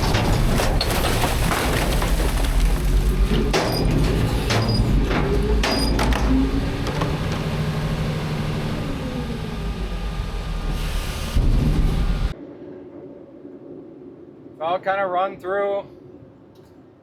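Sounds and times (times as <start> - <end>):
garbage truck rumbling: 0.0 - 12.4.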